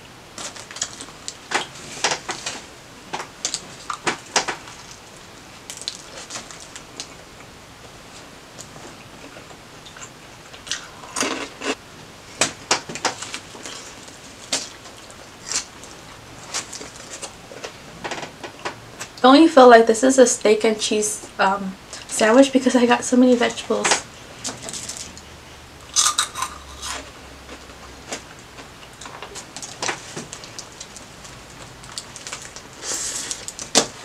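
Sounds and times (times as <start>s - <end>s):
biting and chewing sandwich: 24.4s - 34.0s
crunching snacks: 25.8s - 27.1s.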